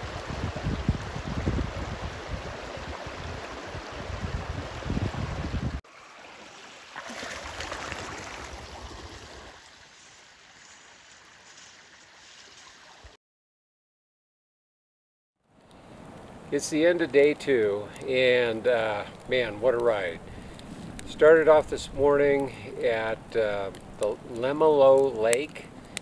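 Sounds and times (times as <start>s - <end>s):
wind rumbling on microphone: 0.0s - 5.8s, 19.0s - 24.6s
rushing stream water: 0.0s - 13.2s, 15.8s - 26.0s.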